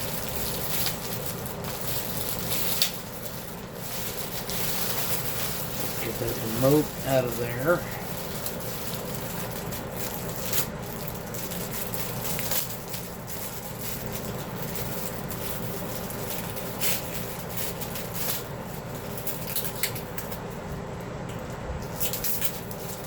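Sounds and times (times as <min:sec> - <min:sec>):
plastic and cardboard rustling: 0:00.0 - 0:20.5.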